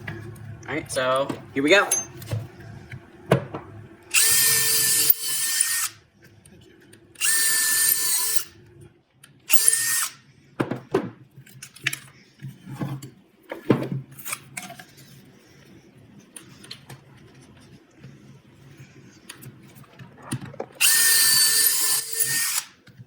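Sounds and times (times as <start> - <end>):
wood and tool knocks: 3.3 - 3.7, 10.6 - 11.2
power drill drilling into wood: 4.1 - 5.9, 7.2 - 8.5, 9.5 - 10.2, 20.8 - 22.7.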